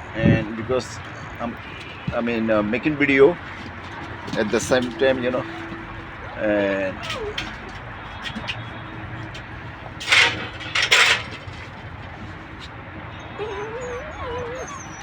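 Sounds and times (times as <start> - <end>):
puppy whining: 4.3 - 7.8, 12.5 - 15.0.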